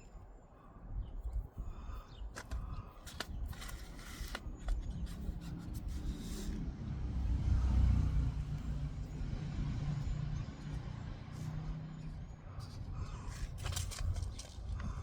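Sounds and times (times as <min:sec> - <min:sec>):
vehicle engine passing by: 0:05.8 - 0:12.8.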